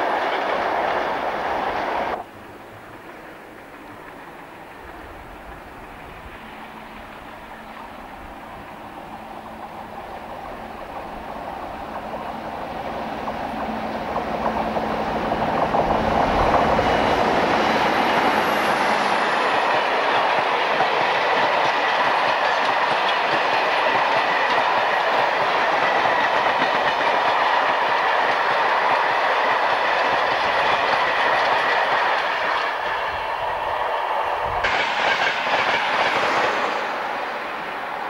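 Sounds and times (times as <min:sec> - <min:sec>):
diesel locomotive passing: 0:00.0 - 0:38.0
wagon wheels clacking on rails: 0:10.4 - 0:33.7, 0:34.4 - 0:37.4.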